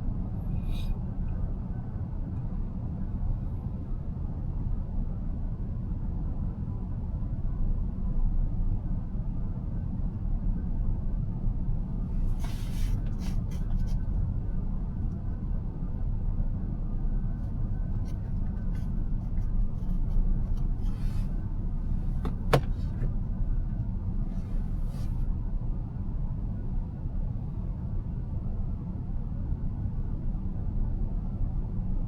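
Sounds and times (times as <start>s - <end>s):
road and tyre rumble: 10.8s - 28.2s.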